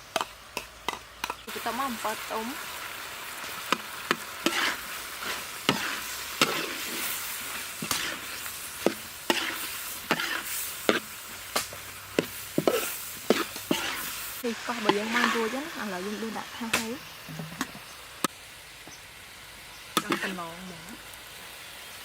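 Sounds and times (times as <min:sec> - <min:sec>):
rice sizzling in a pan: 0:00.0 - 0:22.0
spatula scraping a pan: 0:03.6 - 0:17.9, 0:20.0 - 0:20.4.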